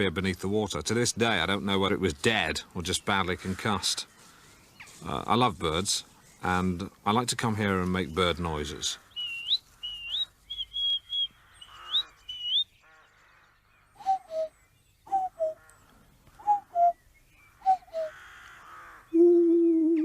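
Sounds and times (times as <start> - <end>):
man whistling birdcalls: 9.2 - 11.3, 11.9 - 12.7, 14.0 - 15.6, 16.4 - 18.2, 19.1 - 20.0
man's wavering hoot: 15.1 - 15.6, 16.4 - 17.0, 17.6 - 18.2, 19.1 - 20.0.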